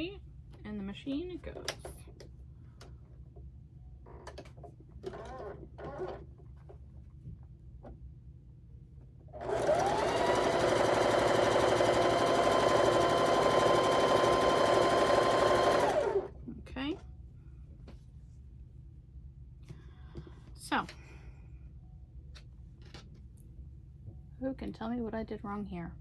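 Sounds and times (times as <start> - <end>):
electric sewing machine running: 9.4 - 16.3.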